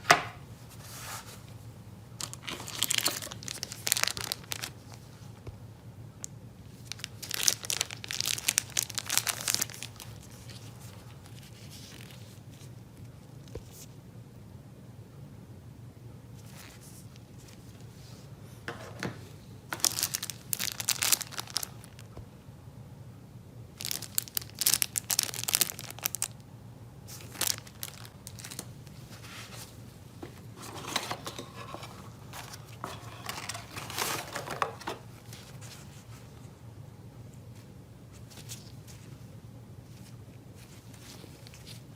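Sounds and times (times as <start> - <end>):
low steady hum: 0.0 - 41.9
packaging crinkling and tearing: 2.2 - 5.1, 6.7 - 12.7, 19.7 - 22.1, 23.8 - 26.4, 27.1 - 29.8, 30.5 - 36.1.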